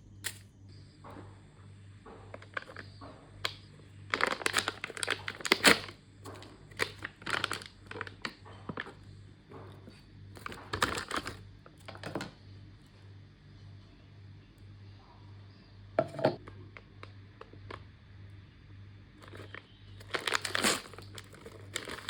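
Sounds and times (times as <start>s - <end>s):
plastic packaging crinkling: 2.3s - 9.0s, 10.4s - 12.2s, 19.2s - 22.0s.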